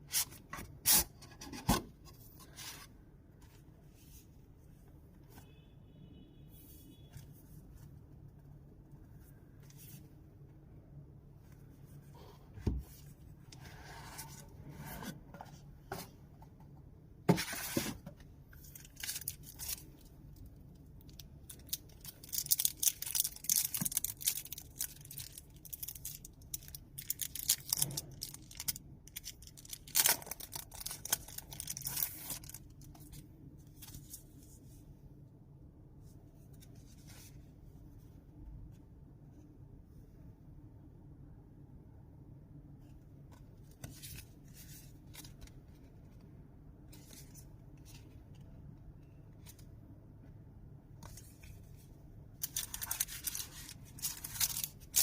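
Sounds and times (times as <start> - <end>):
packaging rustling and crinkling: 21.1 - 33.1, 52.4 - 55.0.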